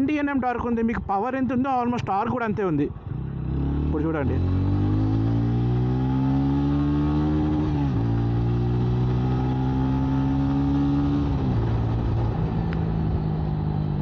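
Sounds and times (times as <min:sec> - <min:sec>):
motorcycle engine accelerating: 0:02.9 - 0:14.0.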